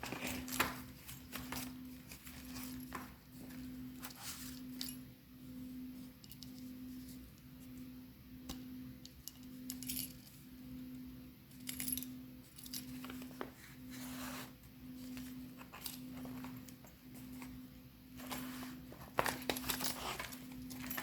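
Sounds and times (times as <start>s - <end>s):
metal rings clinking: 9.0s - 10.4s, 11.6s - 13.4s, 19.3s - 21.0s.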